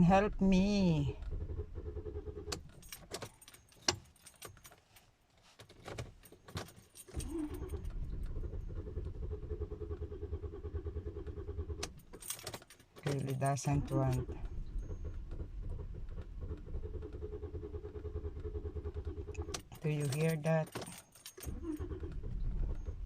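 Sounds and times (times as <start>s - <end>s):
car engine cranking: 0.0s - 23.0s
keychain jangling: 2.8s - 5.0s, 12.0s - 14.2s, 19.6s - 21.6s.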